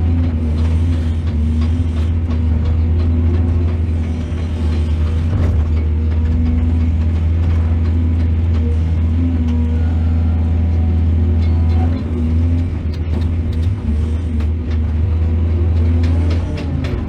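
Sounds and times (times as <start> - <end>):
excavator diesel engine droning: 0.0 - 17.0.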